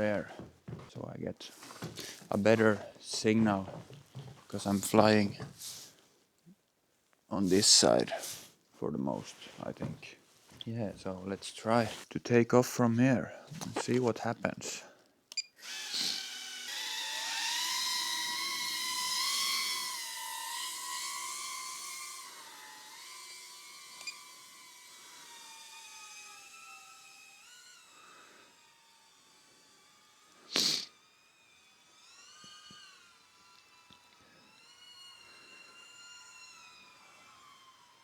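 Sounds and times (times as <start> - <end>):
drone motors whining: 15.6 - 38.0.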